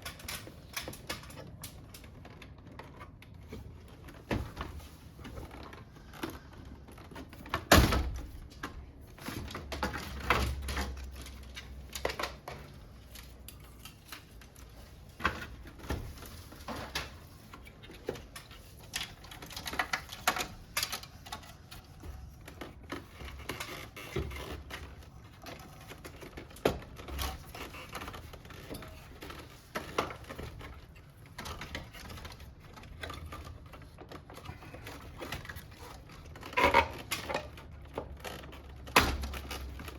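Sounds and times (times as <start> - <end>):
clicks and knocks of parts and tools: 0.0 - 39.9.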